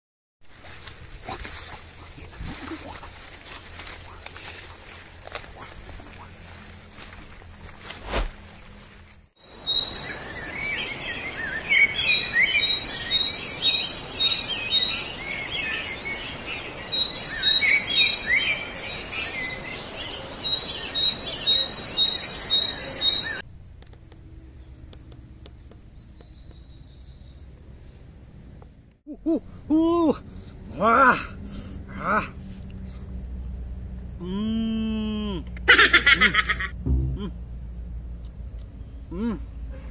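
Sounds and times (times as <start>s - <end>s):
forest background hiss: 0.4s - 39.9s
quiet outdoor hum: 0.4s - 39.9s
birds chirping and calling: 0.8s - 7.3s, 9.5s - 28.2s.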